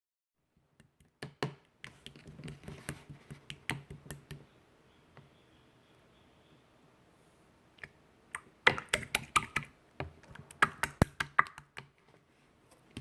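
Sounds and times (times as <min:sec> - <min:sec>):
slime squishing with clicks and pops: 0:07.8 - 0:09.7, 0:10.3 - 0:11.9.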